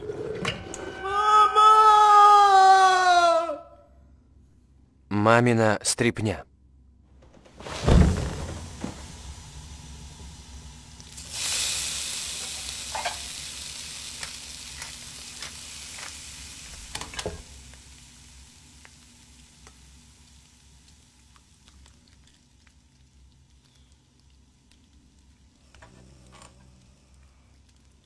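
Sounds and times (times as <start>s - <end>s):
food frying in hot fat: 7.6s - 28.0s
oil pops and crackles: 12.4s - 28.0s.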